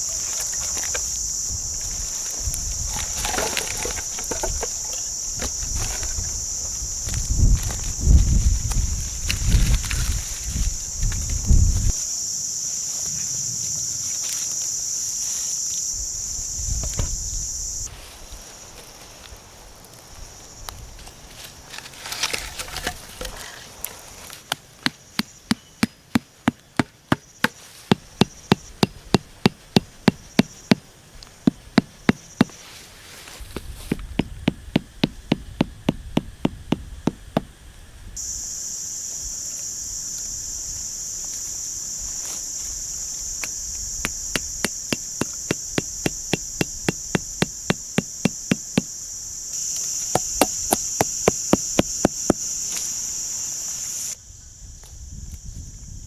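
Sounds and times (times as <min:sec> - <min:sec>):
insects buzzing: 0:00.0 - 0:56.0
sharp knocks: 0:24.9 - 0:32.5, 0:33.9 - 0:37.5, 0:43.4 - 0:48.9, 0:50.1 - 0:52.5.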